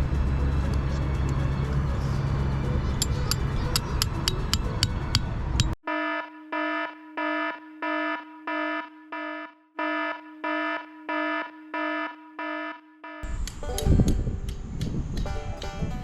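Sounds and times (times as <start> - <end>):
electronic alarm beeping: 5.8 - 13.3.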